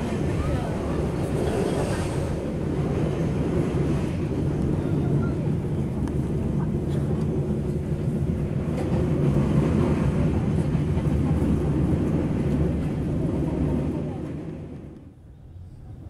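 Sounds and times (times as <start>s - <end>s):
train rumble from inside carriage: 0.0s - 16.0s.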